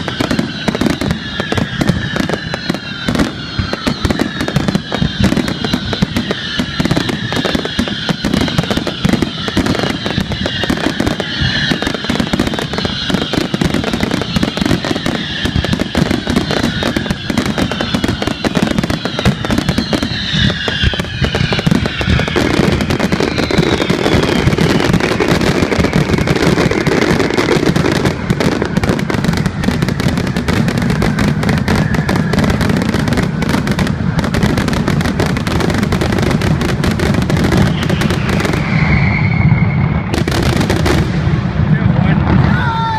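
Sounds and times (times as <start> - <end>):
falling firework whistles: 0.0 - 42.9
fireworks bangs and crackling: 0.0 - 42.9.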